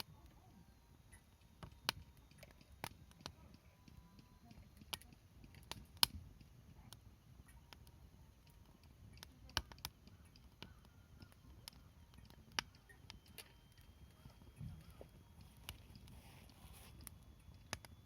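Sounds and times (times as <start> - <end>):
campfire crackling with pops: 1.0 - 16.2, 16.9 - 18.0.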